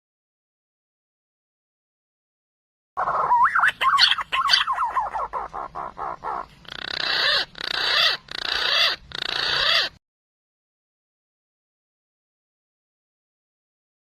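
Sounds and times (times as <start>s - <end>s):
pigeon calls on a recording: 3.0s - 10.0s.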